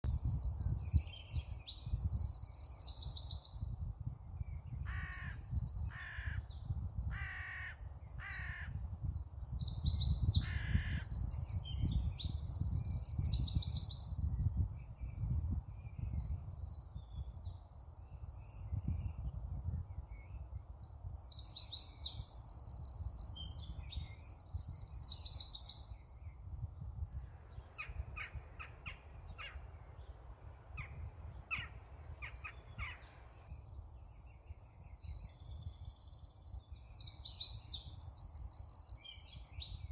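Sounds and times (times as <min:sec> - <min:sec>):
wind rumble on microphone: 0:00.0 - 0:39.9
bird cawing: 0:04.9 - 0:06.4, 0:07.1 - 0:08.8
songbird trilling: 0:09.6 - 0:14.2.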